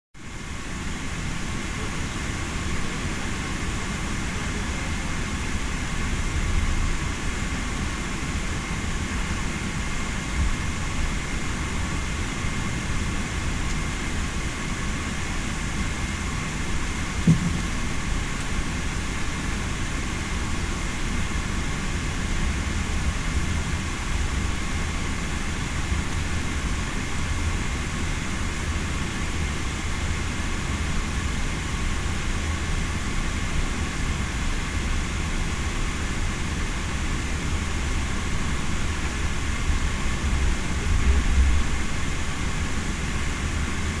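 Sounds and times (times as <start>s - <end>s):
airplane cabin rumble and hiss: 0.2s - 44.0s
faint steady whine: 0.2s - 44.0s
short knock: 17.3s - 17.7s.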